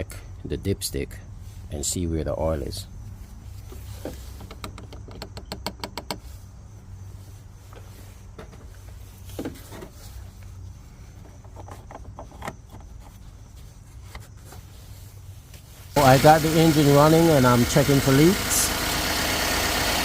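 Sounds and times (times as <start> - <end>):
knocks and clatters: 3.7 - 6.3.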